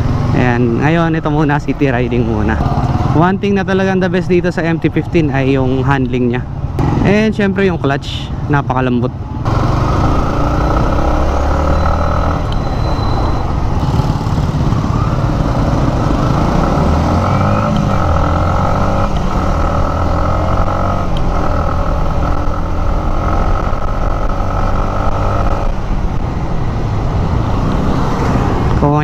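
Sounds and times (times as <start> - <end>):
motorcycle engine running: 9.5 - 25.8.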